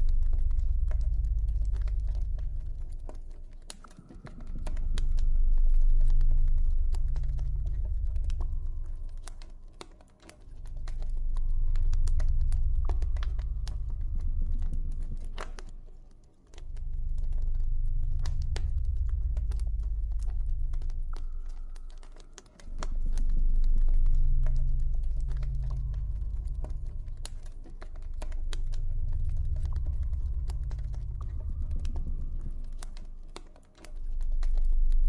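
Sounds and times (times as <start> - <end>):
low ambient drone: 0.0 - 35.0.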